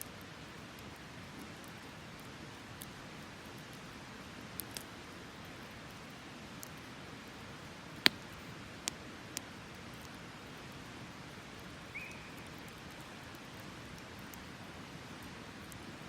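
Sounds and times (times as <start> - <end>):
wood fire hissing and popping: 0.0 - 16.0
high chirp: 11.9 - 12.5.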